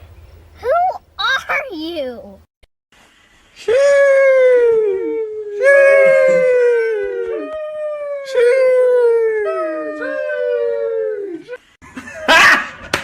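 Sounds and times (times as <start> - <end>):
dog howling: 3.9 - 11.6.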